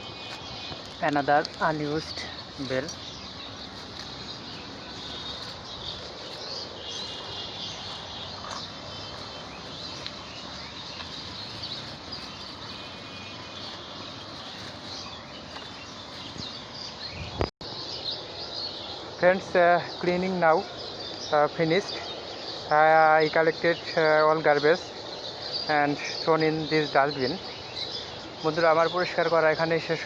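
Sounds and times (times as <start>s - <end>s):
faint bird chirps: 0.0s - 19.1s
insect calls: 0.0s - 29.7s.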